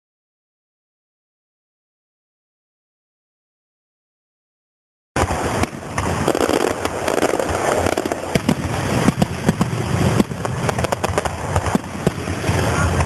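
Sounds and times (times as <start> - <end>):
fireworks crackling and popping: 5.2 - 13.0.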